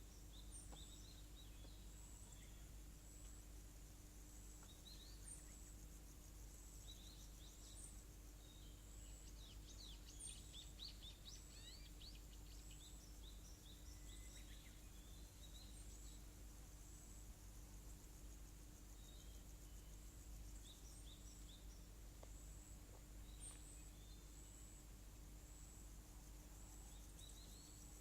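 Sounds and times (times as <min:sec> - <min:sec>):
small birds chirping: 0:04.6 - 0:16.4, 0:18.8 - 0:24.6.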